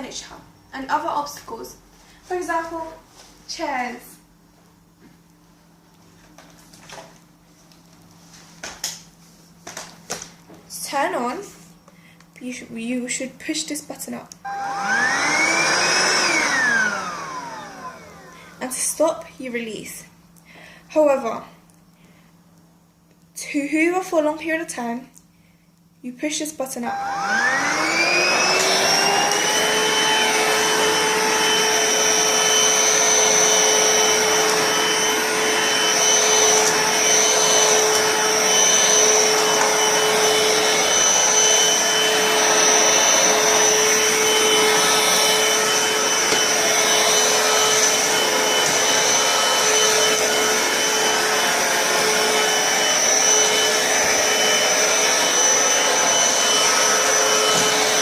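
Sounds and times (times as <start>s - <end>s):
stick vacuum motor whine: 14.4s - 18.6s, 26.9s - 58.0s.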